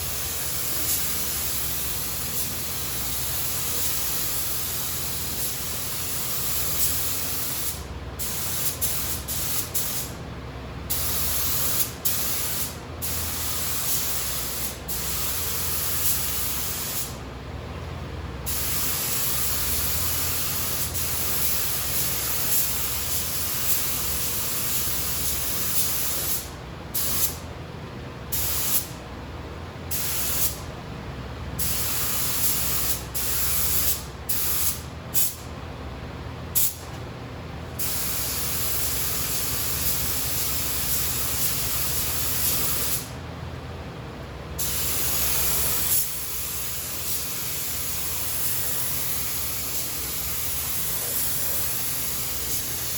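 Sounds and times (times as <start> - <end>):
paint spray gun hissing: 0.0 - 10.1, 10.9 - 17.2, 18.5 - 27.4, 37.8 - 43.1, 44.6 - 52.9
steady low hum: 0.0 - 52.9.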